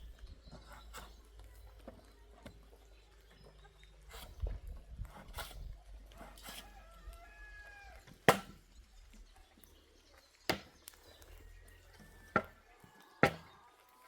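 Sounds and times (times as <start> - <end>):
sharp chopping blows: 8.3 - 8.6.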